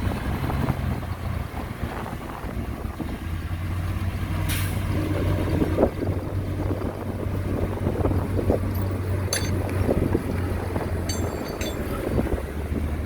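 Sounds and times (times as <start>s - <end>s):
sharp metal clank: 9.3s - 9.8s, 11.1s - 12.2s.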